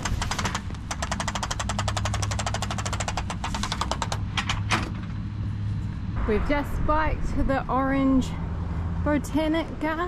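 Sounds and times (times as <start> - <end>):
small machine clattering: 0.0 - 4.9
steady low hum: 0.0 - 10.0.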